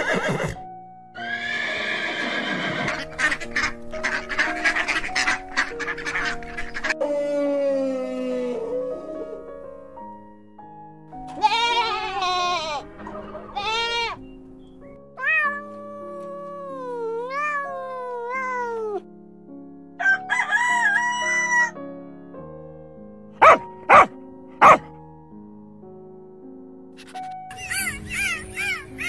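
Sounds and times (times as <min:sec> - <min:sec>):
background piano music: 0:00.0 - 0:29.0
animal call: 0:01.2 - 0:09.5
goat bleating: 0:11.3 - 0:12.8, 0:13.5 - 0:14.2
rooster crowing: 0:20.0 - 0:21.8.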